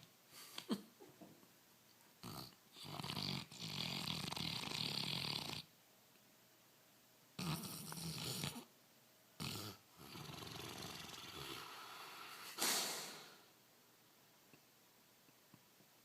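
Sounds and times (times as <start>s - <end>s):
dog snoring: 2.2s - 5.7s, 7.4s - 8.7s, 9.4s - 12.6s.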